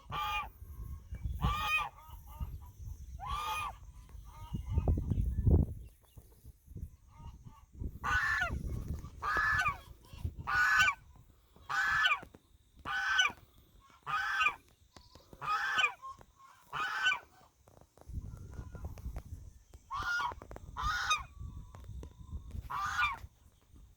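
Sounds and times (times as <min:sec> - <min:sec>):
goose honking: 0:00.0 - 0:00.5, 0:01.4 - 0:04.9, 0:07.1 - 0:14.6, 0:15.4 - 0:17.6, 0:19.9 - 0:21.3, 0:22.6 - 0:23.3.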